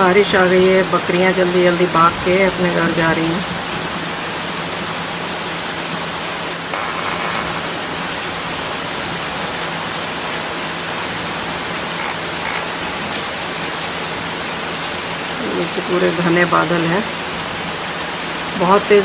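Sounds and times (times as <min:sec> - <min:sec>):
rain falling steadily: 0:02.6 - 0:06.3, 0:16.6 - 0:19.0.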